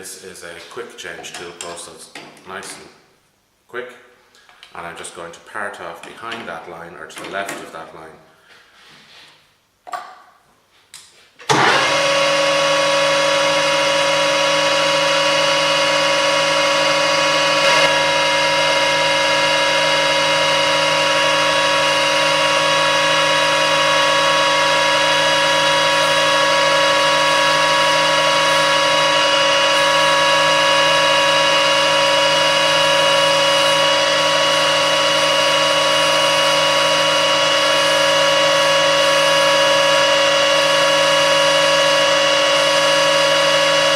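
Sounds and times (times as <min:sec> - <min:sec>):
metal lathe whining: 0:11.5 - 0:43.9.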